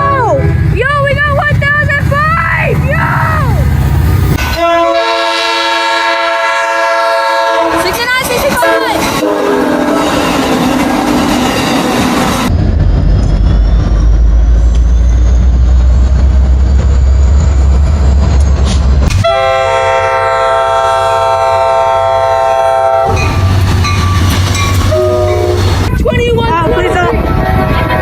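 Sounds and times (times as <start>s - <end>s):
diesel locomotive rumbling past: 0.0s - 28.0s
locomotive air horn blast: 4.4s - 8.0s, 8.6s - 10.2s, 19.1s - 23.5s, 24.8s - 25.9s.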